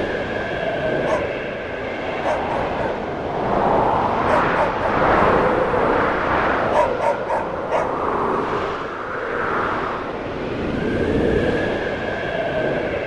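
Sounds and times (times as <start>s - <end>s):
snowstorm wind blowing: 0.0s - 13.0s
dog barking: 1.0s - 1.3s, 2.2s - 2.8s, 6.7s - 8.0s.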